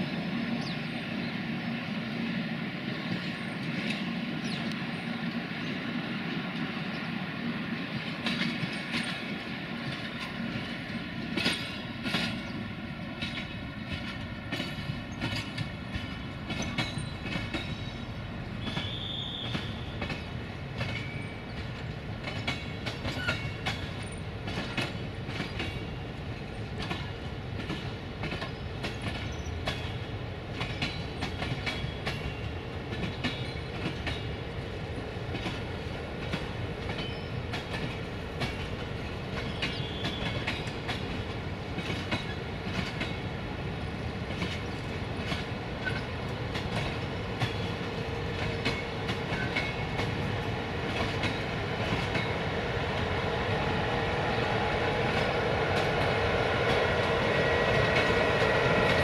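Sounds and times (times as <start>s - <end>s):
train rumble and hum: 0.0s - 59.0s
wheels clicking over rail joints: 8.0s - 12.6s, 13.2s - 53.1s.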